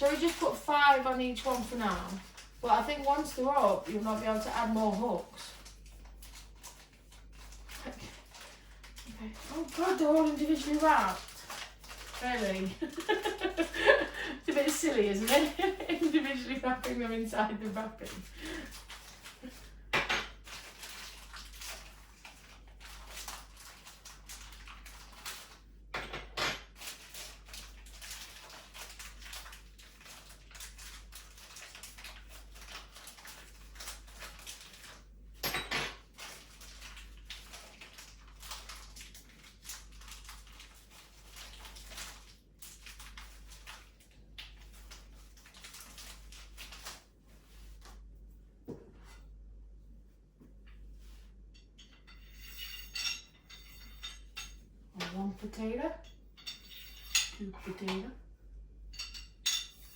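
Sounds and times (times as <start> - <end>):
plastic wrappers crinkling: 0.0 - 25.9, 26.6 - 48.2
metal hooks clinking: 51.8 - 54.6.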